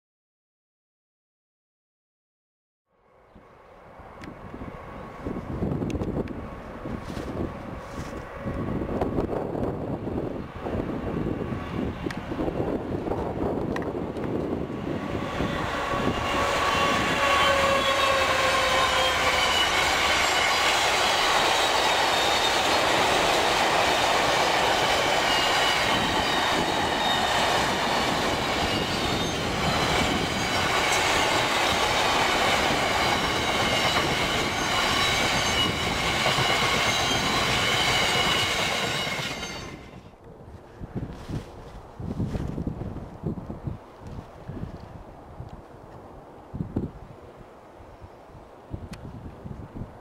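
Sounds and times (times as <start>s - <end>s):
diesel locomotive passing: 2.9s - 40.2s
wheel squeal: 15.2s - 24.1s, 24.8s - 40.0s.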